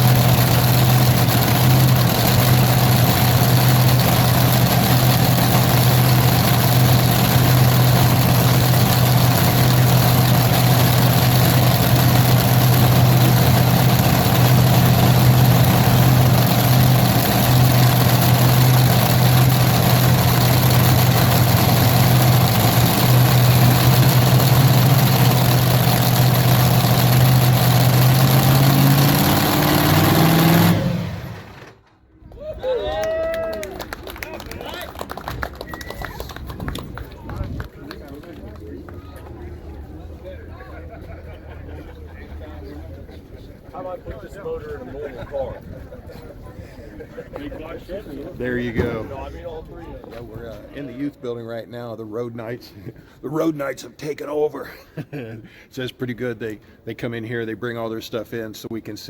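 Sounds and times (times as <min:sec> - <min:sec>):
large engine humming and revving: 0:00.0 - 0:31.8.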